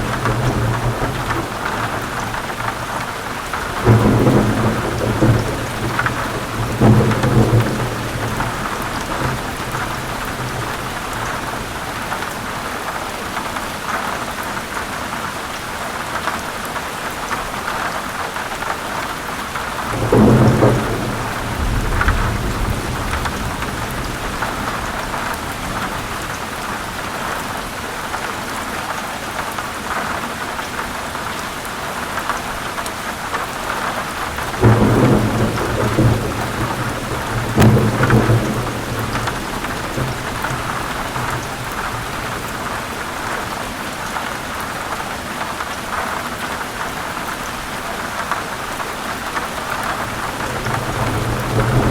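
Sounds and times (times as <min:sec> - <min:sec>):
thunder rumbling: 0:00.0 - 0:12.4, 0:19.6 - 0:27.4, 0:33.9 - 0:43.6, 0:49.7 - 0:51.9
heavy rain falling: 0:00.0 - 0:51.9.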